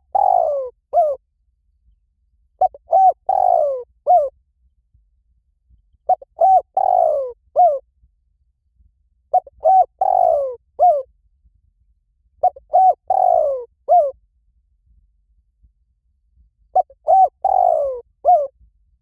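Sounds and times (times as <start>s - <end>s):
dove cooing: 0.0s - 1.2s, 2.6s - 4.3s, 6.1s - 7.8s, 9.3s - 11.1s, 12.4s - 14.2s, 16.8s - 18.5s.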